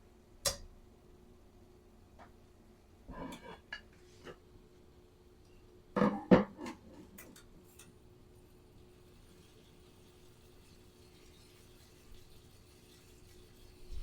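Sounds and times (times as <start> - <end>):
kitchenware clattering: 6.0 - 7.5.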